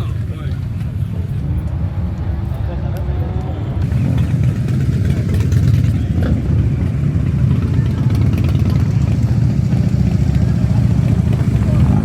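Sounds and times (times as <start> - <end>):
motorcycle engine idling: 3.9 - 12.0.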